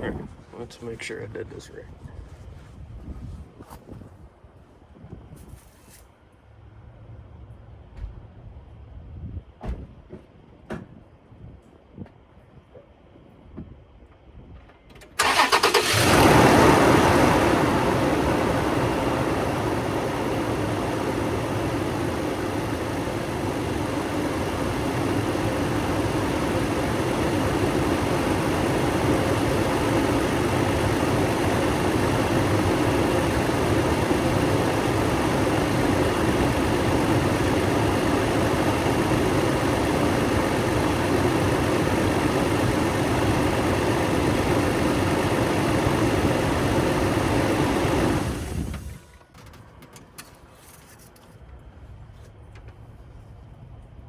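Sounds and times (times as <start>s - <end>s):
engine starting and idling: 15.0s - 49.7s.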